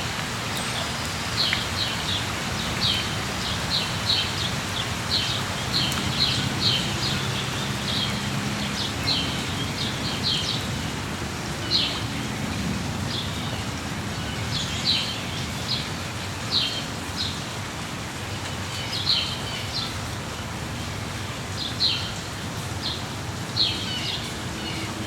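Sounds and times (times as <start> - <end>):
birds chirping: 0.0 - 17.4
steady rain hiss: 0.0 - 25.0.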